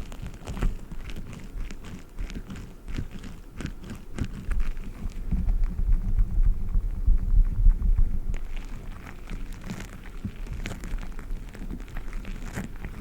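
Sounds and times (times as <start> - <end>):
sticky crackles and squishes: 0.0 - 13.0
low handling rumble: 4.6 - 11.5
squishy toys squeezed: 8.4 - 13.0.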